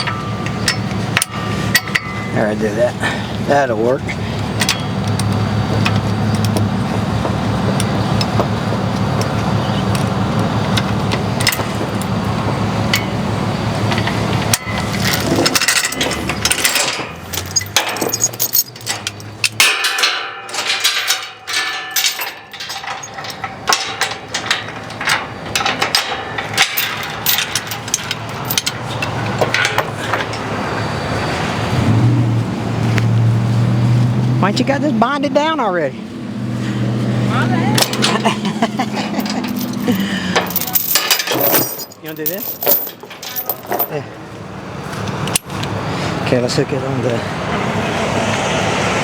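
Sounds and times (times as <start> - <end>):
chains clanking and rattling: 0.0 - 31.6, 37.3 - 44.2.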